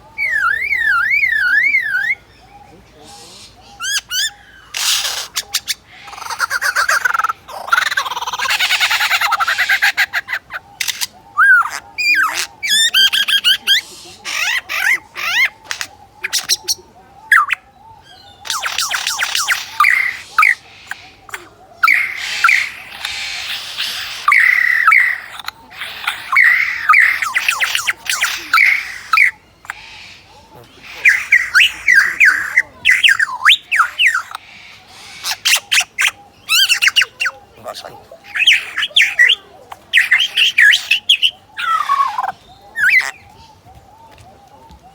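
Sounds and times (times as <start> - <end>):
lyrebird singing: 0.0 - 44.9
lyrebird clicks and whistles: 18.4 - 30.0.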